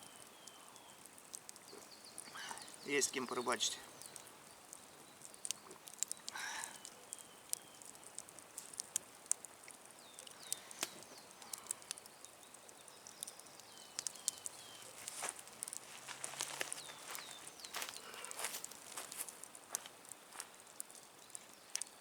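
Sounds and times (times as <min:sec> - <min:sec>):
bird chirping: 0:00.0 - 0:08.0, 0:09.9 - 0:15.3, 0:16.3 - 0:19.0
campfire crackling: 0:00.0 - 0:22.0.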